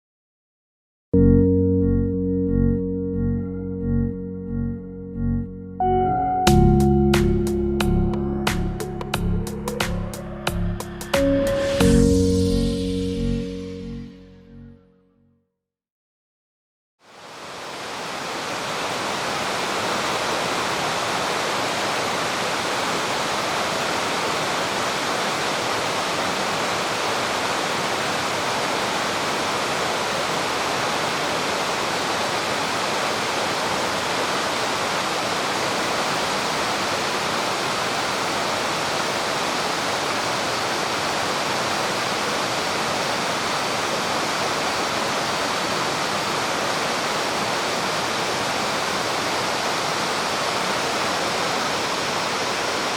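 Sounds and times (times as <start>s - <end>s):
mountain stream flowing: 17.0s - 52.9s.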